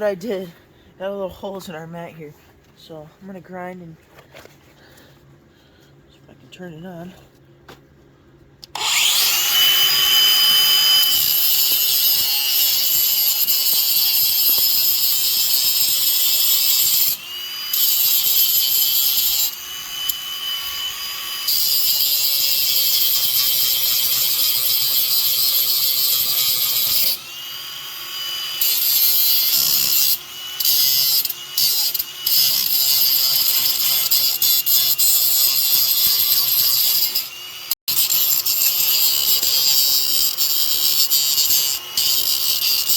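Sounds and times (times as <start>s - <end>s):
grinder grinding metal: 8.6s - 42.9s.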